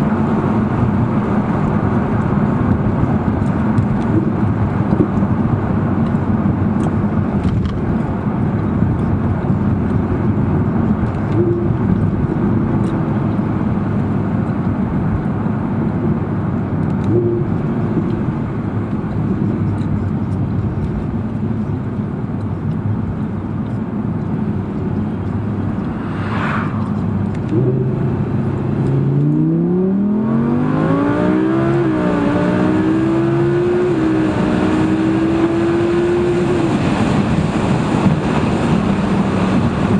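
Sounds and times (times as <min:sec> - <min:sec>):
road noise: 0:00.0 - 0:39.9
car engine accelerating: 0:23.5 - 0:39.9.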